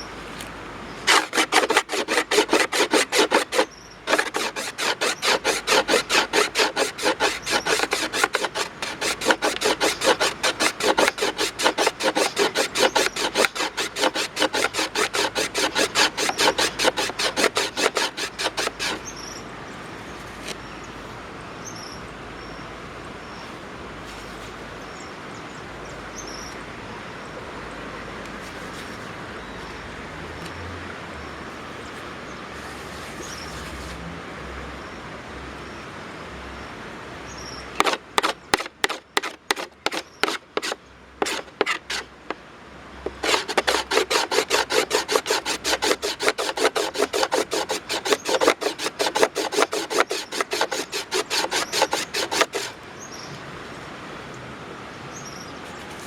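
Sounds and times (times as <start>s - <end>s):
steady outdoor hiss: 0.0s - 56.0s
tool rasping wood: 1.1s - 19.1s, 37.8s - 42.1s, 43.0s - 52.8s.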